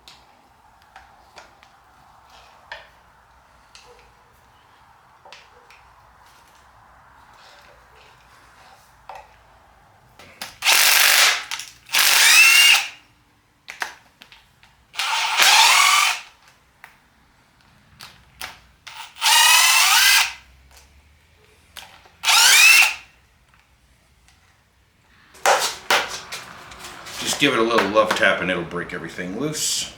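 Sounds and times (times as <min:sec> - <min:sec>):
cordless power tool whining: 0:10.6 - 0:13.0, 0:15.0 - 0:16.4, 0:18.9 - 0:20.4, 0:22.2 - 0:23.1, 0:25.3 - 0:28.6.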